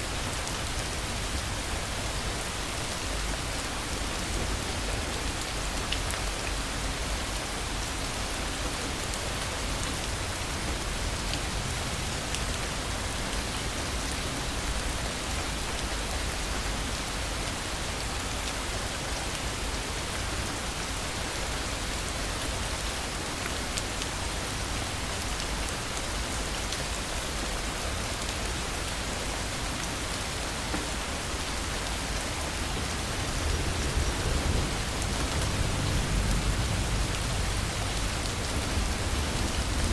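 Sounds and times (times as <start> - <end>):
heavy rain falling: 0.0 - 39.9
low rumble of thunder: 32.7 - 39.9.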